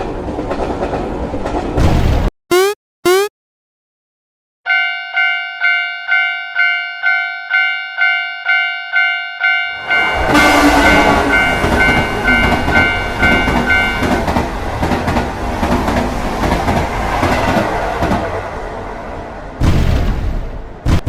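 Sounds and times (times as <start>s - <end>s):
train rumbling over rails: 0.0s - 1.8s, 9.7s - 20.8s
level crossing warning bell: 4.7s - 14.2s.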